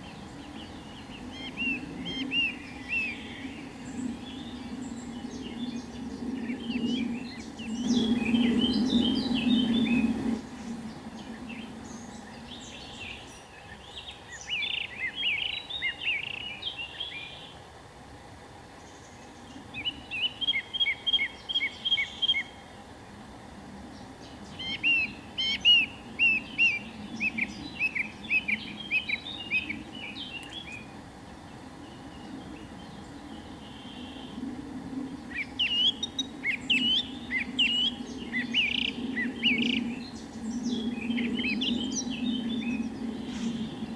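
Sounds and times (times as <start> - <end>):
songbird chirping: 0.0 - 17.7, 18.7 - 22.9, 23.8 - 34.4
faint background hum: 0.0 - 43.9.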